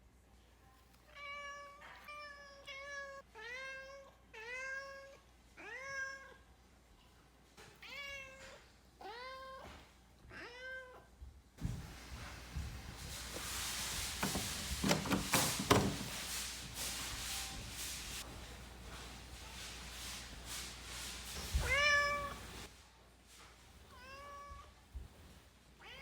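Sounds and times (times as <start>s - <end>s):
cat meowing: 21.6s - 22.5s.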